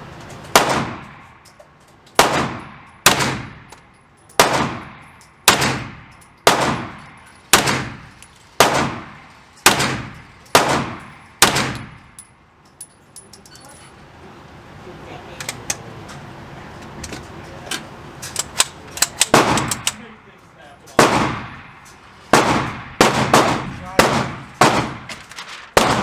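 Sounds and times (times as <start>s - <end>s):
gunshots with echo: 0.6s - 1.3s, 4.4s - 7.0s, 8.6s - 12.0s, 21.0s - 25.1s, 25.8s - 26.0s.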